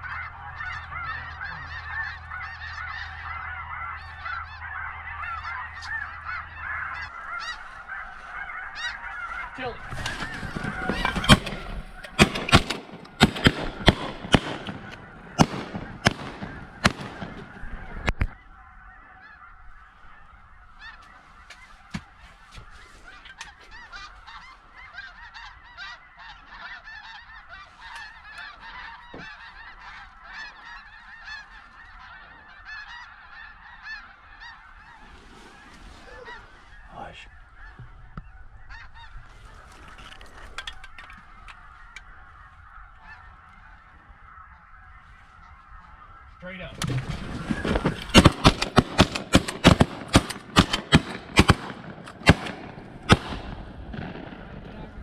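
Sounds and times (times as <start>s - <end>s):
geese honking: 0.0s - 55.0s
shotgun shots: 11.1s - 17.5s, 47.6s - 55.0s.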